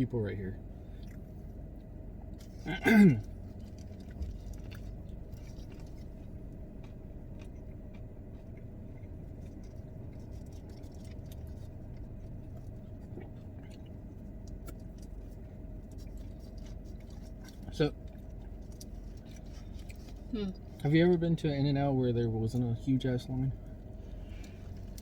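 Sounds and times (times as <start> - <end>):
car engine idling: 0.0 - 25.0
clicks and rustles from eating: 3.2 - 20.3.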